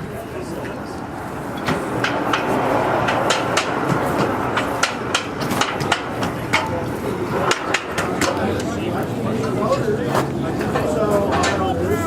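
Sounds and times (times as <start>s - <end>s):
train equipment clacking: 0.0s - 11.8s
steady train running noise: 0.0s - 12.0s.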